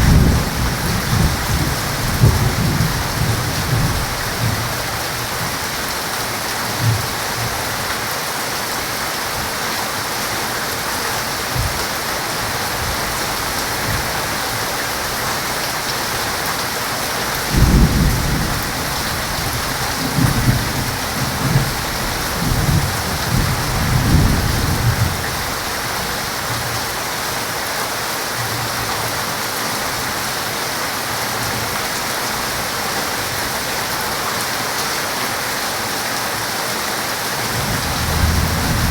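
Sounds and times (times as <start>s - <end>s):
thunder rumbling: 0.0s - 5.0s, 17.4s - 25.6s, 37.4s - 38.9s
heavy rain pouring: 0.0s - 38.9s.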